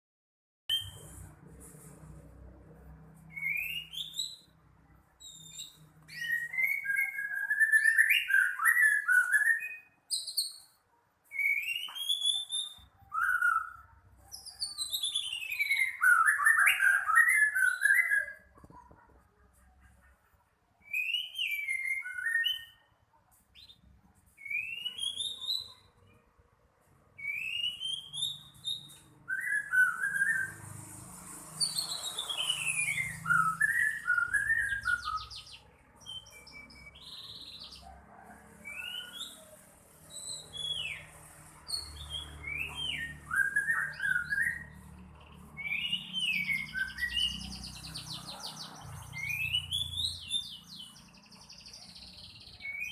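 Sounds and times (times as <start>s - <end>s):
bird whistling song with trills: 0.7s - 1.3s, 3.2s - 4.6s, 5.2s - 18.9s, 20.8s - 22.9s, 23.6s - 26.1s, 27.2s - 30.8s, 31.5s - 37.9s, 38.6s - 52.9s.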